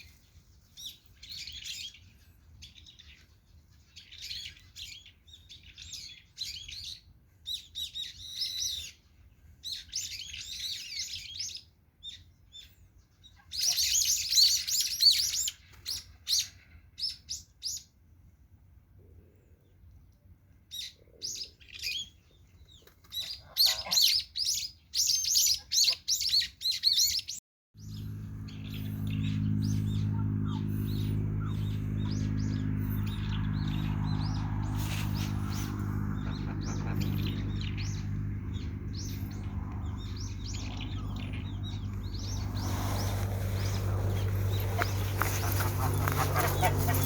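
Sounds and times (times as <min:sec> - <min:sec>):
small birds chirping: 0:00.0 - 0:17.9, 0:20.7 - 0:47.0
steady low hum: 0:27.8 - 0:47.0.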